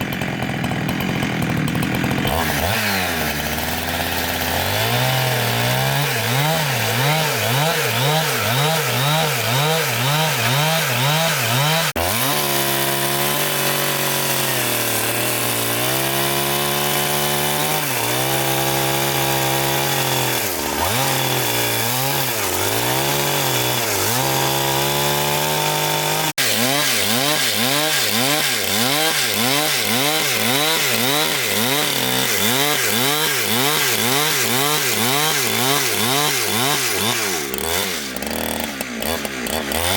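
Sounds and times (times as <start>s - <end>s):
petrol saw cutting log: 0.0s - 39.9s.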